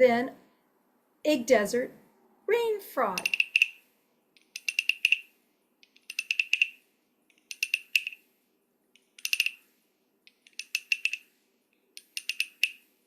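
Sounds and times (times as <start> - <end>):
toy frog croaking: 3.1 - 3.8.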